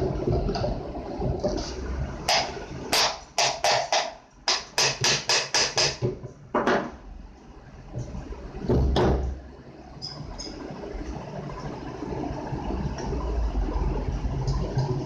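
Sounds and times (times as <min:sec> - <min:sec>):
sharp tapping knocks: 0:02.3 - 0:06.9.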